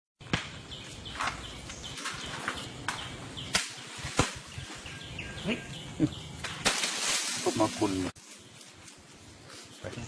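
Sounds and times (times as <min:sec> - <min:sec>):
sharp cracks or knocks: 0:00.2 - 0:00.6, 0:02.0 - 0:04.5, 0:06.4 - 0:07.5
outdoor background noise: 0:00.2 - 0:10.0.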